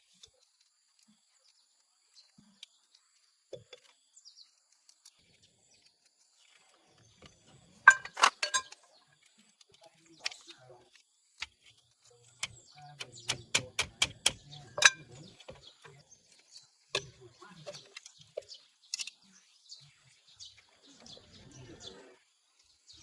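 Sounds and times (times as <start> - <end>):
sharp knocks and clicks: 12.4 - 16.0.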